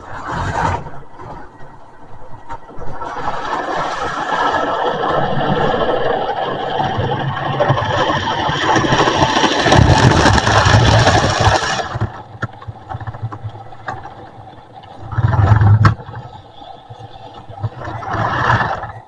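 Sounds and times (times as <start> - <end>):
wheels clicking on rails: 0.0 - 19.0
model train running on track: 1.6 - 12.0, 16.2 - 19.0.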